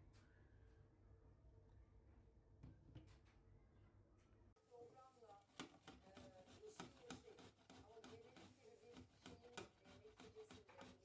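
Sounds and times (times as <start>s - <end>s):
light clicks and taps: 5.4s - 11.0s.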